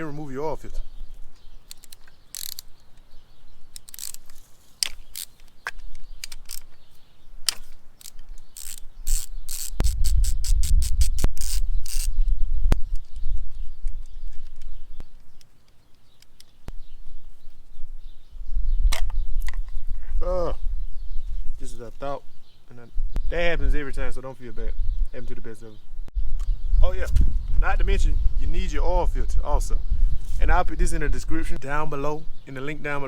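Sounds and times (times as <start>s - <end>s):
metal parts clinking: 1.7s - 2.7s, 3.8s - 6.8s
ratchet clicking: 1.7s - 2.7s, 3.8s - 5.4s, 8.0s - 12.1s.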